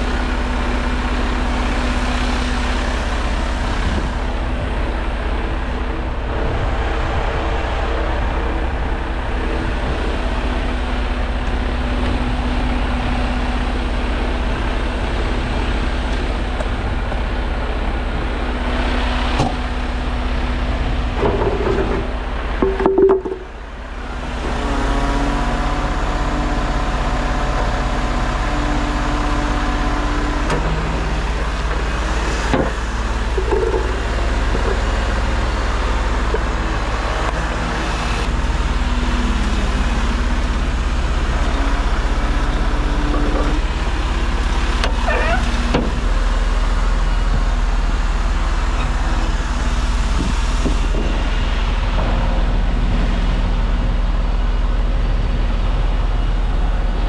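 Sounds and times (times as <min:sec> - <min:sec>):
heavy truck diesel engine running: 0:00.0 - 0:57.0.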